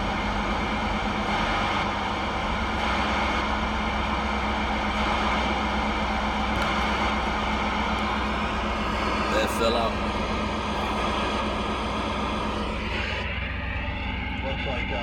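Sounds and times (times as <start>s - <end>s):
low hum: 6.5s - 15.0s
radio static hiss: 6.6s - 13.2s.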